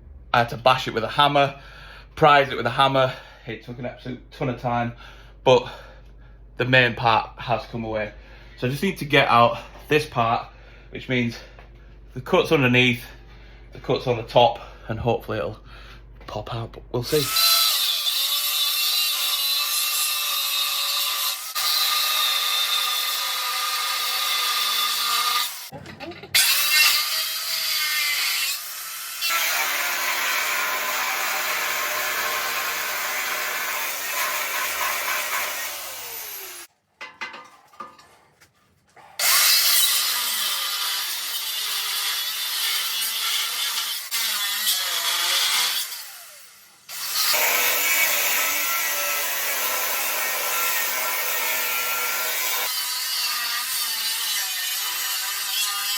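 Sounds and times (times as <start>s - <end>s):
angle grinder cutting steel: 17.1s - 36.7s, 39.2s - 55.9s.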